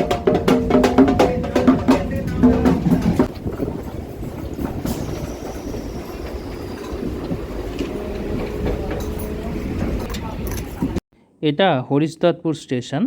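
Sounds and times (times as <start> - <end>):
train rumble and wheel clatter: 0.0 - 11.0
faint steady squeal: 4.0 - 10.7
faint high whistle: 4.9 - 9.4.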